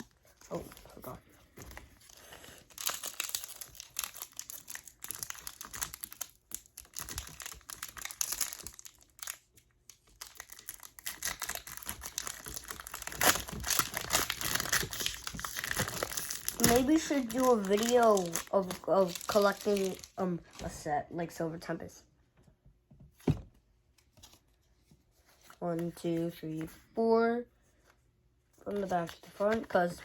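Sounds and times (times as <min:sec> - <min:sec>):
foil wrapper crinkling: 0:02.1 - 0:20.2.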